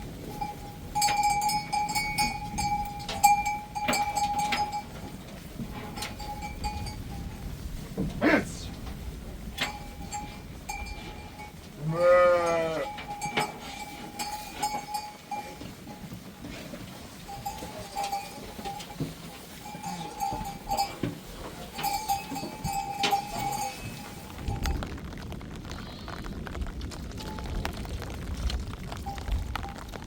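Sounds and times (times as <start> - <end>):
livestock bells clinking: 0.0 - 7.6, 9.4 - 24.8
sheep bleat: 11.8 - 13.0.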